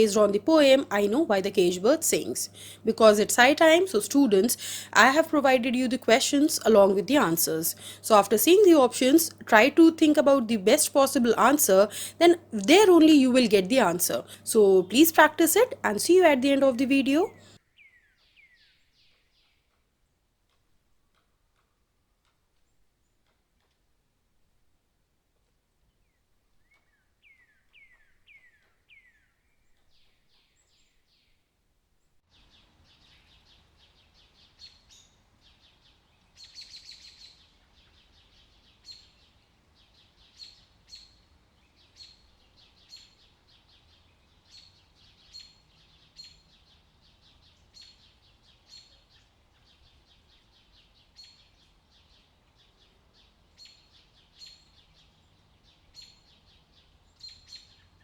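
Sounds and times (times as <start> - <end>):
birds chirping: 0.0 - 17.6
low background noise: 0.0 - 17.8, 18.7 - 58.0.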